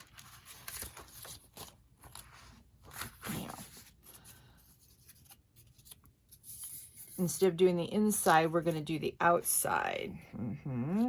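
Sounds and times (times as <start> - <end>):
paper scraping and tearing: 0.0 - 4.2.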